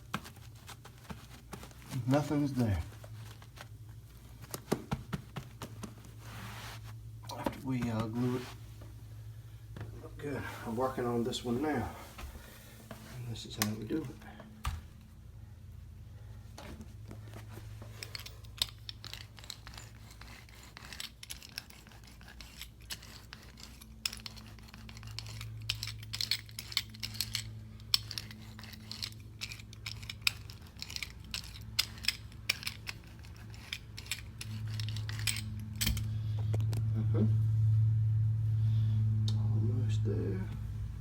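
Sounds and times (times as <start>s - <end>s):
steady low hum: 0.0s - 41.0s
hand tools clicking and snipping: 17.9s - 36.1s.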